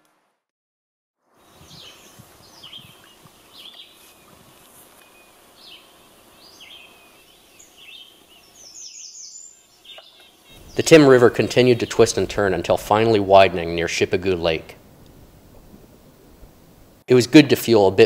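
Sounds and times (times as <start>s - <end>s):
steady outdoor hiss: 1.2s - 18.0s
birds chirping: 1.4s - 13.9s.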